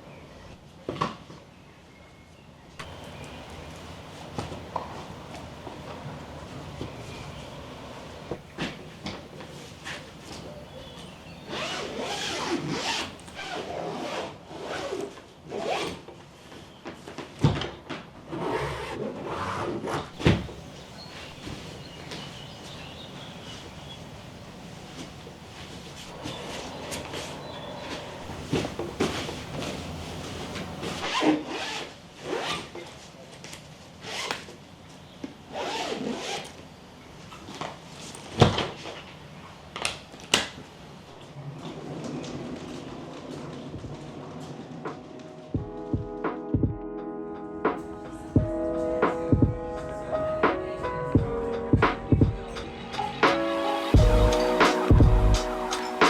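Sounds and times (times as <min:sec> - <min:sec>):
rubbing and scraping sweeps: 0:02.8 - 0:16.6, 0:18.3 - 0:32.7, 0:53.2 - 0:56.0.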